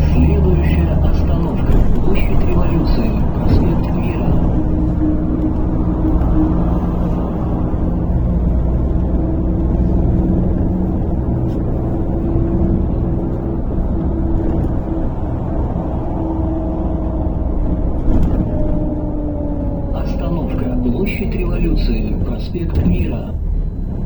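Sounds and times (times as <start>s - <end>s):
falling whine: 0.0s - 8.1s
bus engine drone: 0.0s - 24.0s
road noise: 0.0s - 24.0s.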